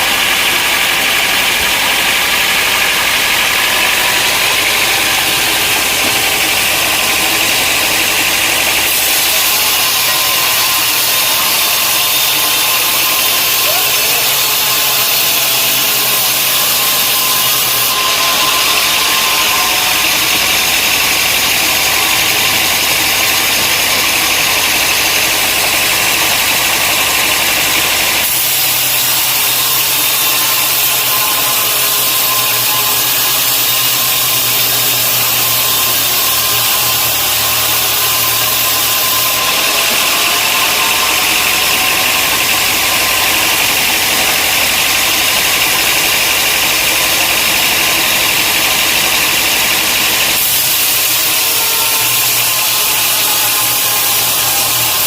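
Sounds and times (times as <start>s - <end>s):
sawmill machinery drone: 0.0s - 55.0s.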